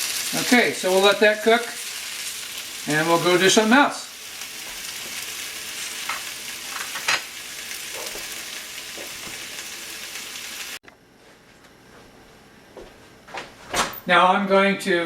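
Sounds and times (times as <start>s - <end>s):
vegetables sizzling in a pan: 0.0s - 10.8s.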